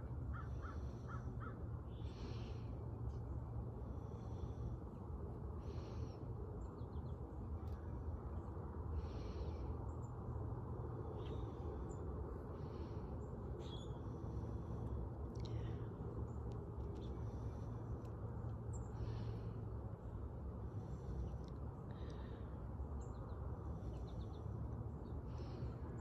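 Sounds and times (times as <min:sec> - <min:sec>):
low outdoor rumble: 0:00.0 - 0:26.0
bird chirps: 0:13.6 - 0:14.0.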